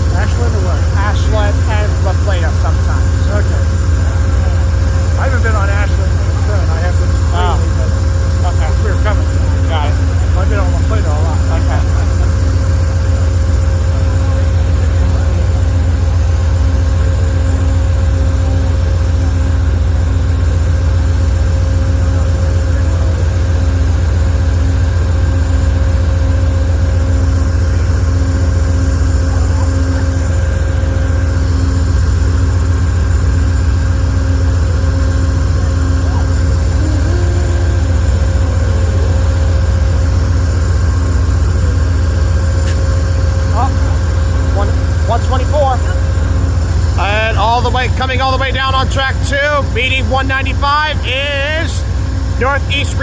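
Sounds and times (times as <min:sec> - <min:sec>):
diesel locomotive idling: 0:00.0 - 0:53.0.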